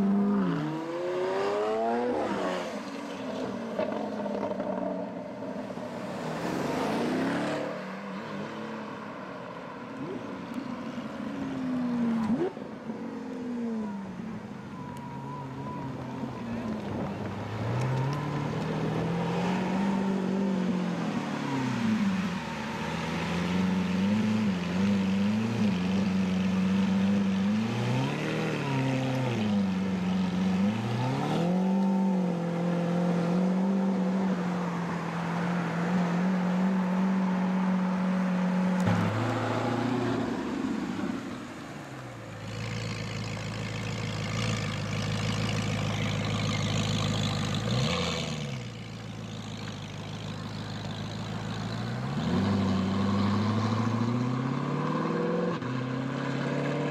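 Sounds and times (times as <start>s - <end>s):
car engine revving: 15.6s - 56.9s.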